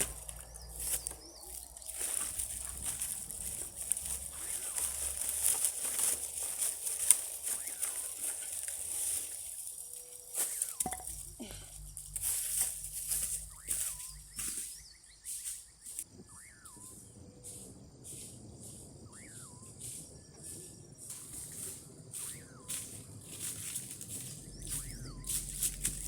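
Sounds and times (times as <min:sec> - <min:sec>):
dry branches cracking and snapping: 0:00.0 - 0:13.9
high-pitched insect buzz: 0:00.0 - 0:26.0
bird whistles: 0:19.0 - 0:26.0.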